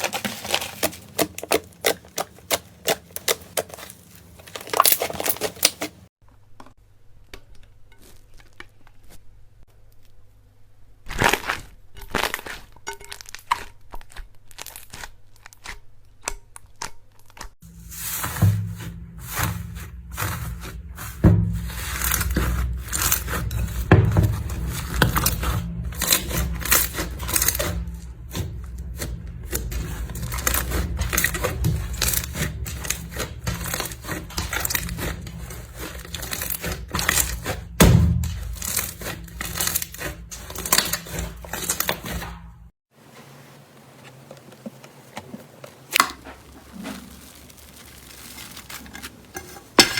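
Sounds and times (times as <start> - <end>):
slime crackling and popping: 0.0 - 6.0, 45.9 - 49.4.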